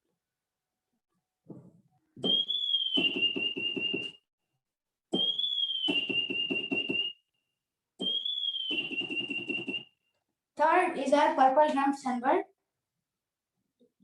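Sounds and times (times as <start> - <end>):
keyboard whistle with trill: 2.2 - 4.3, 5.1 - 10.2.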